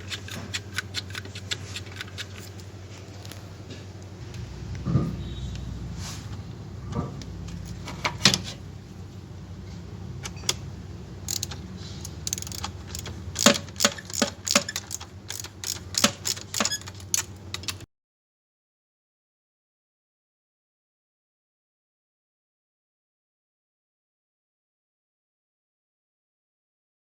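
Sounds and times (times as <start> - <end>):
hand tools clicking on metal: 0.0 - 2.7, 11.3 - 17.8
steady low hum: 0.0 - 17.8.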